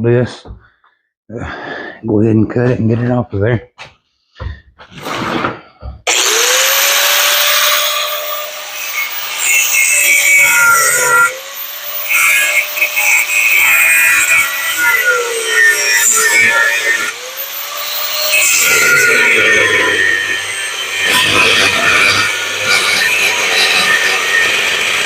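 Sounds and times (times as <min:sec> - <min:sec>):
angle grinder cutting metal: 0:06.1 - 0:25.0.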